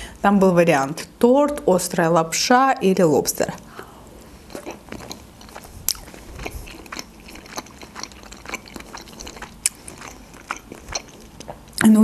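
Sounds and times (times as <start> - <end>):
person chewing food: 3.6 - 11.8.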